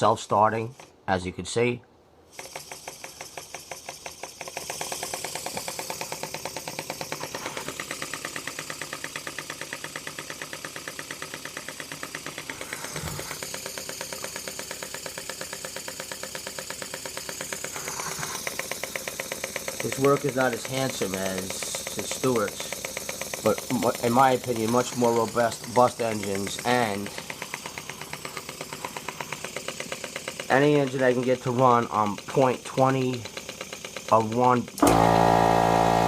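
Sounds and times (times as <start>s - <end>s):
model steam engine puffing: 2.3s - 36.0s
steam hissing: 4.7s - 31.5s.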